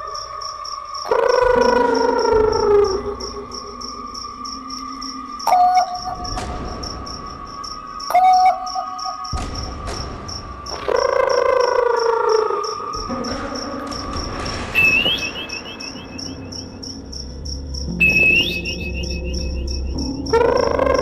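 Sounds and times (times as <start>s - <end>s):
crickets chirping: 0.0s - 21.0s
high whistle with rising trills: 14.7s - 16.8s, 17.9s - 20.0s.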